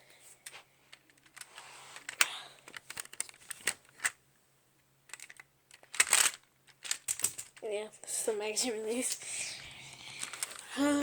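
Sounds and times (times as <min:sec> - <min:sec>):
plastic toy pieces clicking: 0:02.1 - 0:04.2, 0:05.1 - 0:07.6.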